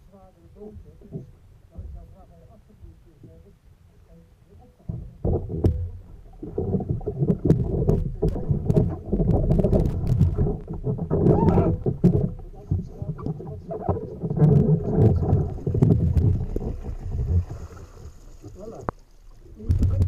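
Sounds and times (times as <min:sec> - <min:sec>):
water sloshing around a kayak: 0:04.5 - 0:20.0
sharp knocks and clicks: 0:04.8 - 0:17.4.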